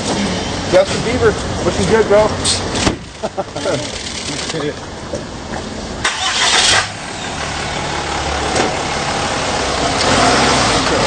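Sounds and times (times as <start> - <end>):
pickup truck engine starting: 6.0 - 11.0.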